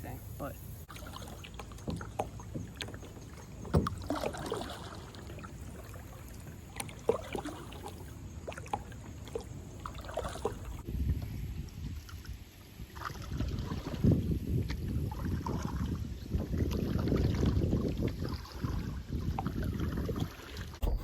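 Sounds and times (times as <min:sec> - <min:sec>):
water and wind rumble: 0:00.0 - 0:21.0
water splashing: 0:00.7 - 0:10.9, 0:12.0 - 0:21.0
knocks against kayak hull: 0:01.6 - 0:04.5.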